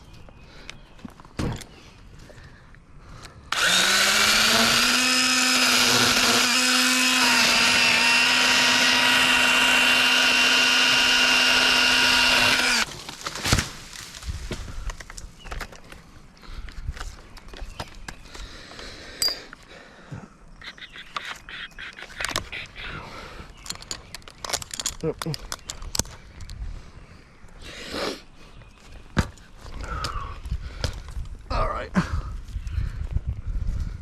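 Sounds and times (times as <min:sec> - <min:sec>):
electric pruning saw motor whine: 0:03.5 - 0:12.9.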